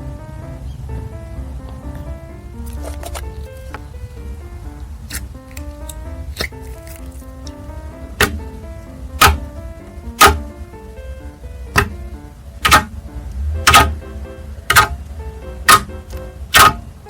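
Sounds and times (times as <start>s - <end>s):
soft plucked music: 0.0s - 17.0s
sharp taps: 9.2s - 9.6s, 11.8s - 12.0s, 13.7s - 14.0s, 15.7s - 16.8s.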